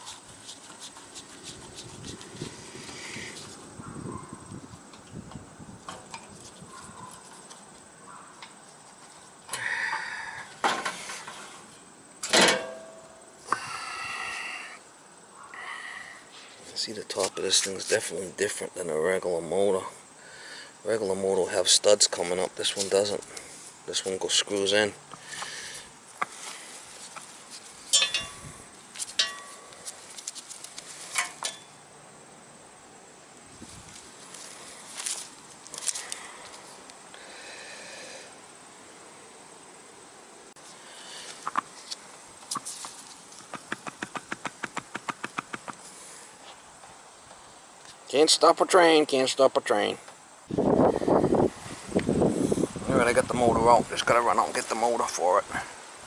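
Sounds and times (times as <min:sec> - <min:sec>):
metal tools clinking: 0:27.9 - 0:28.4, 0:29.0 - 0:29.7, 0:31.1 - 0:31.7.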